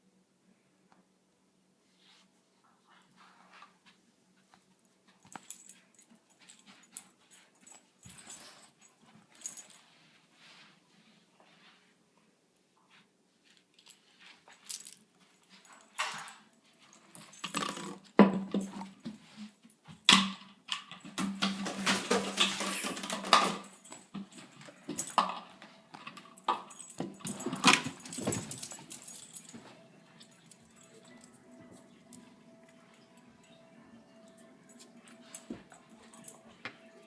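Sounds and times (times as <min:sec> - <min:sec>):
dog collar tags jangling: 0:05.2 - 0:09.8, 0:13.7 - 0:19.1, 0:22.3 - 0:33.6, 0:34.4 - 0:36.6
knocks and rustling: 0:21.0 - 0:31.3.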